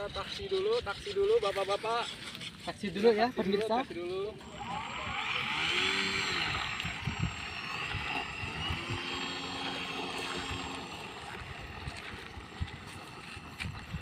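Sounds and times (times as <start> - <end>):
propeller plane taxiing: 4.4 - 14.0.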